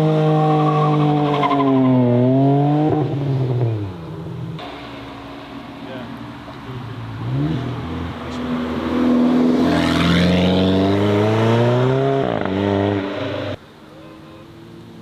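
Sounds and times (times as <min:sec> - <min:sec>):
car engine accelerating hard: 0:07.2 - 0:13.6.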